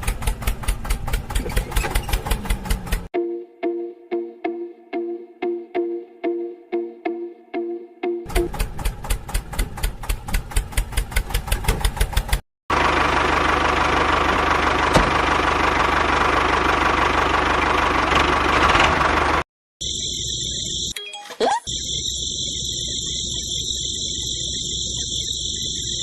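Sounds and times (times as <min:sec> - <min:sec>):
small engine knocking: 0:00.0 - 0:03.1, 0:08.3 - 0:19.4.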